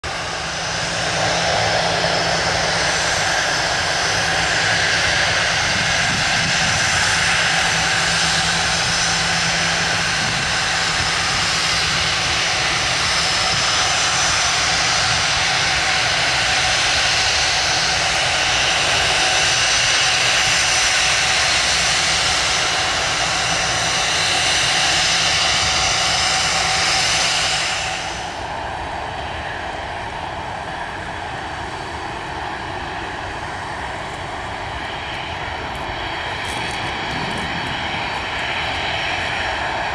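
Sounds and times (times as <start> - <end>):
high engine whine: 0.0 - 39.9
jet engines running: 0.0 - 39.9.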